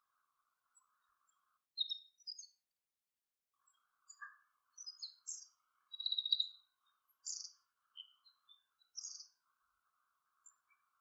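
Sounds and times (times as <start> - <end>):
small birds chirping: 0.7 - 2.6, 3.6 - 9.6, 10.2 - 11.0.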